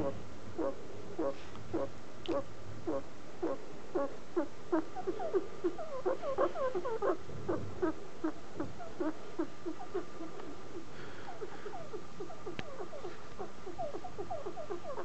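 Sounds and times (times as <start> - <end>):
guinea pig chirping: 12.2 - 15.0.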